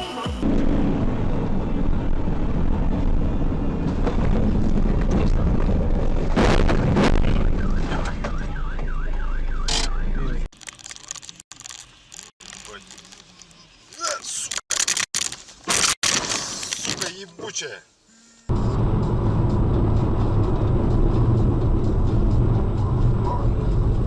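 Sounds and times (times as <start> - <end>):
vehicle rumbling on road: 0.4 - 14.6, 18.5 - 24.0.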